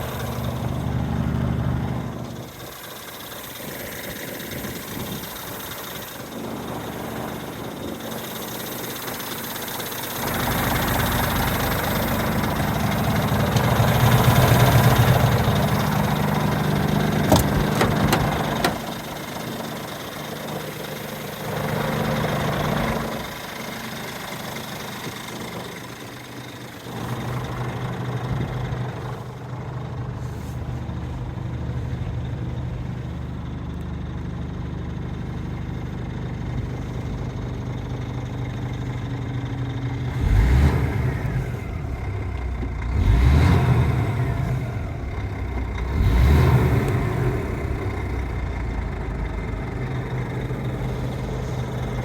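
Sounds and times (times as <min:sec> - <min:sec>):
diesel truck engine idling: 0:00.0 - 0:52.0
engine revving: 0:10.2 - 0:19.1, 0:40.0 - 0:52.0.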